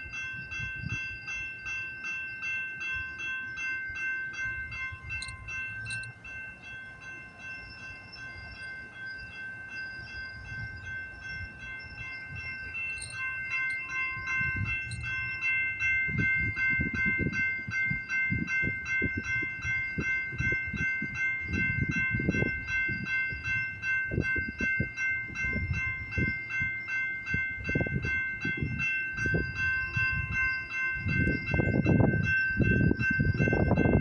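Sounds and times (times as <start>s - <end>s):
railroad crossing bell ringing: 0.0s - 34.0s
train low rumble: 0.0s - 34.0s.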